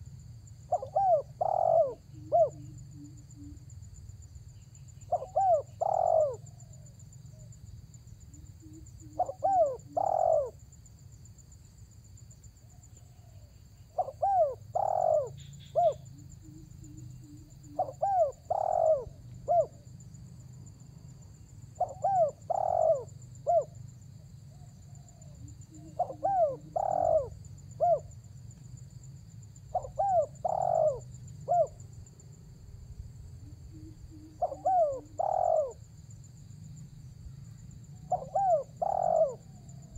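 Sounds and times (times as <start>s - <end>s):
dove cooing: 0.7s - 3.7s, 5.0s - 6.9s, 8.6s - 10.6s, 12.7s - 19.8s, 21.7s - 23.8s, 24.5s - 28.2s, 29.7s - 31.8s, 33.4s - 35.8s, 37.9s - 39.9s.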